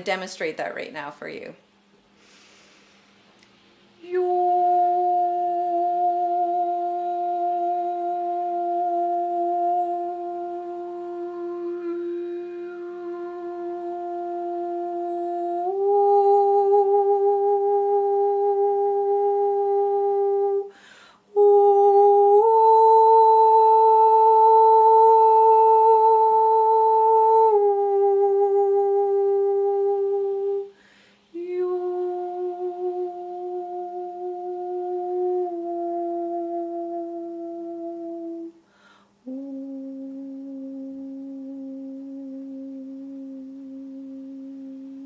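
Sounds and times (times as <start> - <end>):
person breathing: 2.1 - 3.3, 20.7 - 21.3, 30.7 - 31.3, 38.6 - 39.2
woman humming long tones: 4.0 - 45.0.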